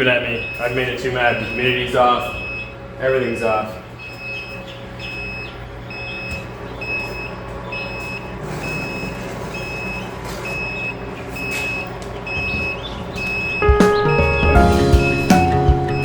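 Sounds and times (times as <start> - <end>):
high steady alarm beeps: 0.3 - 2.8, 4.0 - 13.9.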